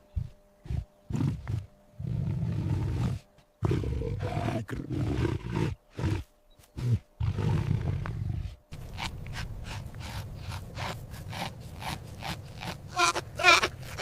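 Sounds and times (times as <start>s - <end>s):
big cat roaring: 0.6s - 8.6s.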